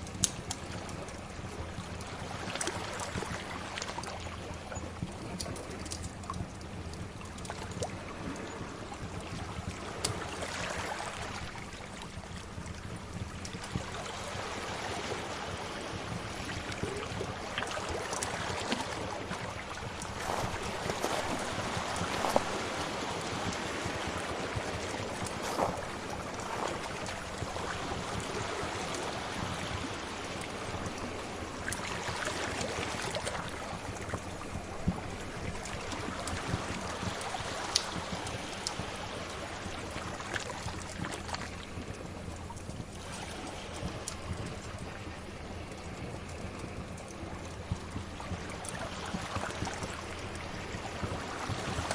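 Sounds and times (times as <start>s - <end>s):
crackling fire pops: 0.0s - 1.2s
sea waves washing in: 7.8s - 51.9s.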